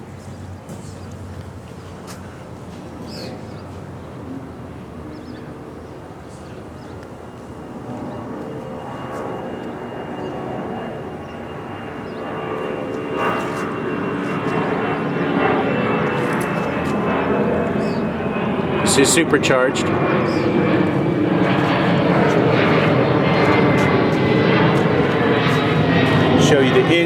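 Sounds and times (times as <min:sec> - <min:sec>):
engine drone: 0:07.0 - 0:27.0.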